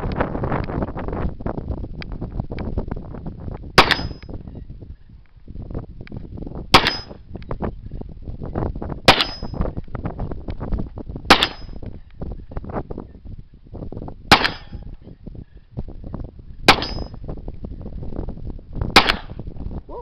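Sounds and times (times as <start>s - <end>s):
wind rumbling on microphone: 0.0s - 20.0s
metallic ring: 3.8s - 4.2s, 9.1s - 9.6s, 16.7s - 17.2s
pistol shots: 3.8s - 4.2s, 6.8s - 7.2s, 9.1s - 9.5s, 11.3s - 11.8s, 14.3s - 14.8s, 16.7s - 17.1s, 19.0s - 19.4s.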